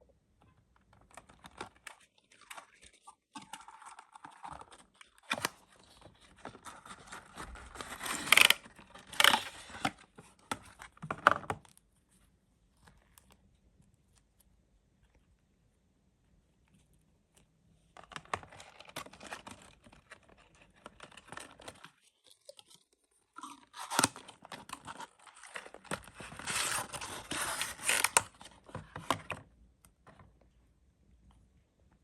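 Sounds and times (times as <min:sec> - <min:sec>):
plastic packaging crinkling and tearing: 0:01.1 - 0:10.1, 0:18.4 - 0:29.0.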